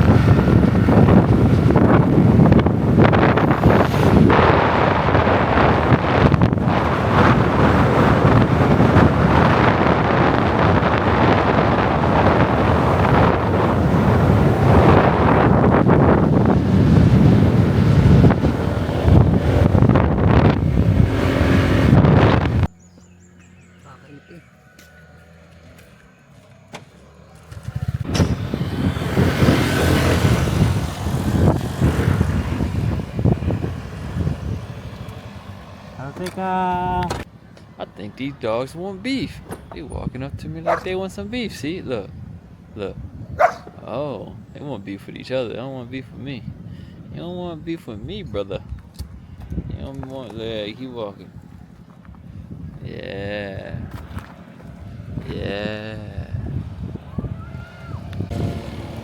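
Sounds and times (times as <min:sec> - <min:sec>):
wind buffeting microphone: 0:00.0 - 0:26.7, 0:27.4 - 0:59.0
vehicle engine running: 0:00.0 - 0:37.8, 0:58.0 - 0:59.0
road noise: 0:00.0 - 0:59.0.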